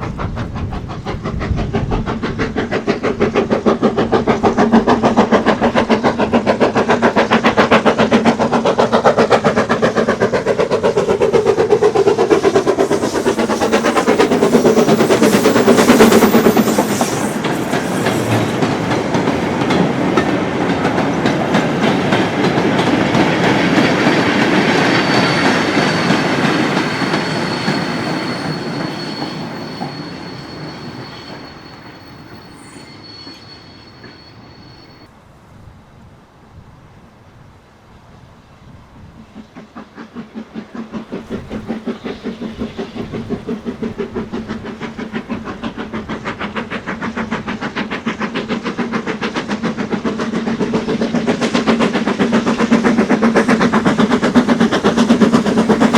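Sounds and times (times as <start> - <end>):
steam locomotive exhaust beats: 0.0 - 35.7, 37.7 - 55.9
wagons clattering over rail joints: 12.9 - 31.1.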